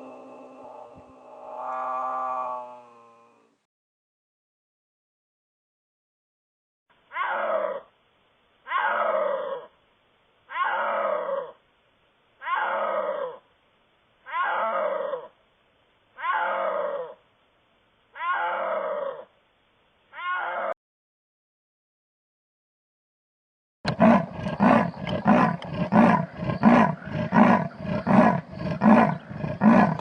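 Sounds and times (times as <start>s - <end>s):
big cat roaring: 0.0s - 3.6s, 23.9s - 30.0s.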